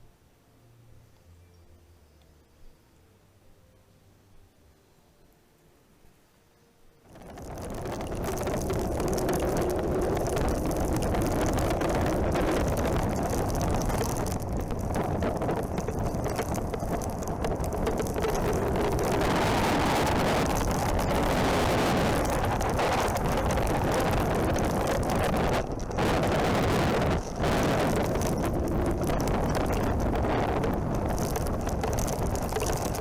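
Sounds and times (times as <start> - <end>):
wind buffeting microphone: 7.1 - 33.0.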